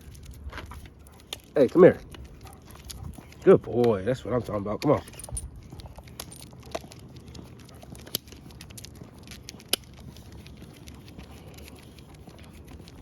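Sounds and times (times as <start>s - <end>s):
footsteps on outdoor path: 0.0s - 13.0s.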